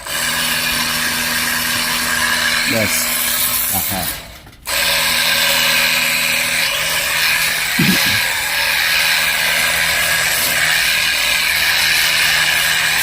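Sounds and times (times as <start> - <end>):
small engine running: 0.0 - 13.0
goat bleat: 7.8 - 8.2.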